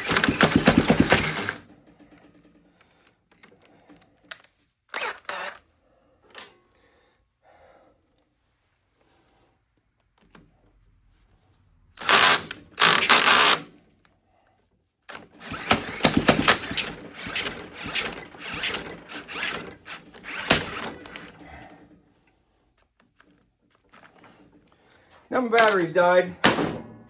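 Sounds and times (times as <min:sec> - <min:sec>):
cordless drill driving nut: 0:00.0 - 0:01.6, 0:04.9 - 0:05.6, 0:12.0 - 0:13.7, 0:15.1 - 0:21.4.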